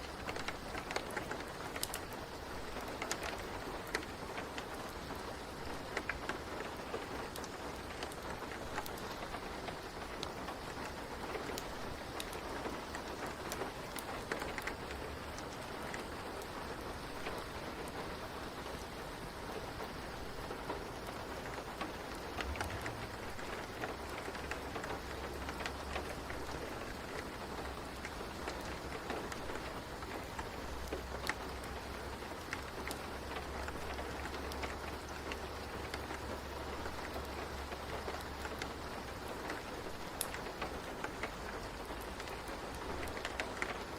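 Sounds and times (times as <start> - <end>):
fire crackling and popping: 0.0 - 43.9
steady rain: 0.0 - 43.9
low rumble: 22.4 - 23.5.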